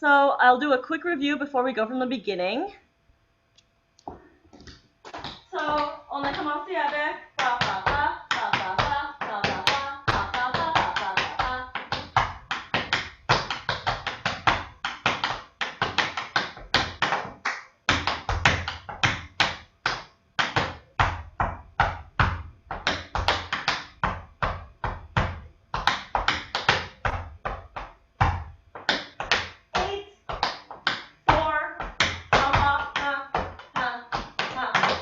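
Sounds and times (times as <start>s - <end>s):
tap shoes on hard floor: 4.0s - 35.0s.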